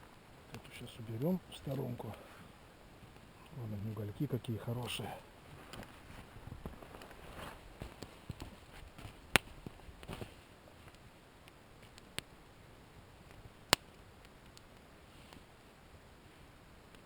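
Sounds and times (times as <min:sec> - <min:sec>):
campfire crackling and popping: 0:00.0 - 0:17.0
sticks and embers shuffling: 0:00.5 - 0:11.1.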